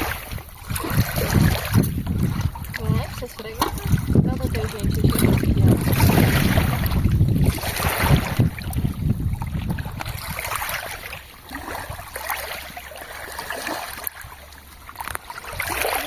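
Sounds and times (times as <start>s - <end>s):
wind rumble on microphone: 0.0s - 12.8s
river water splashing: 0.0s - 16.0s.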